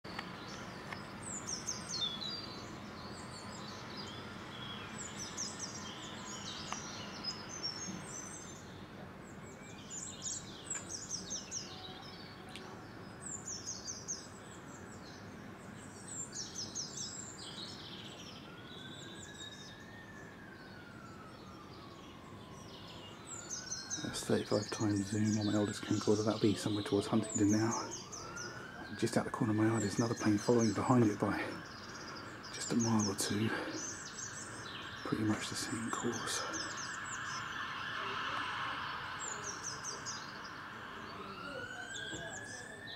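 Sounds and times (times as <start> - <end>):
small birds chirping: 0.0 - 42.9
outdoor background hum: 0.1 - 42.9
faint rising and falling tone: 20.3 - 42.9.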